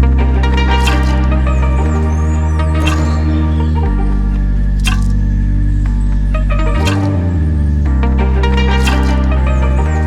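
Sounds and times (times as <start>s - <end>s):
sustained music chords: 0.0s - 10.0s
sharp percussive hits: 2.8s - 3.6s, 4.8s - 5.3s, 6.8s - 7.3s.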